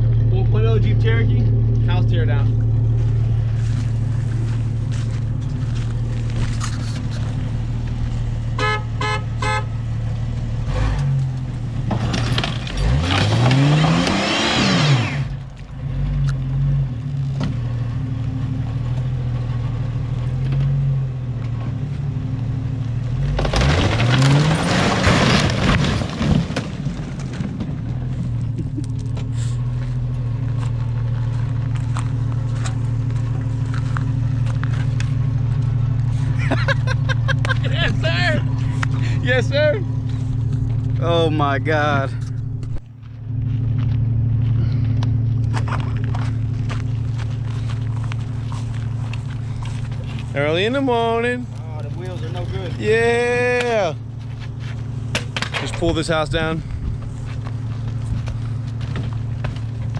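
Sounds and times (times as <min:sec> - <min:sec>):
vehicle engine running and revving: 0:00.0 - 0:59.9
short horn toots: 0:08.6 - 0:09.8.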